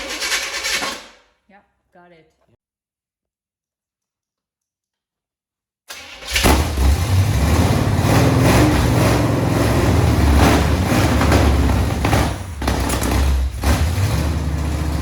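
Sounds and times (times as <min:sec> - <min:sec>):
truck engine starting and running: 0:05.9 - 0:15.0.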